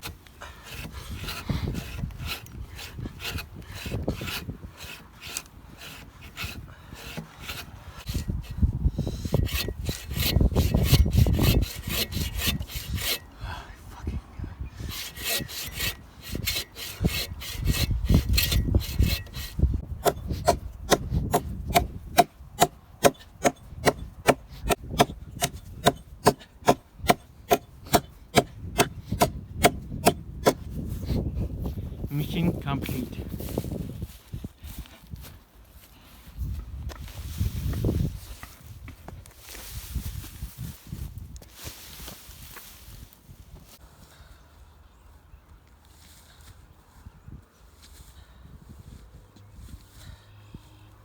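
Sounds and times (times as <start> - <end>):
hand saw cutting wood: 0.0 - 13.3, 14.8 - 31.3.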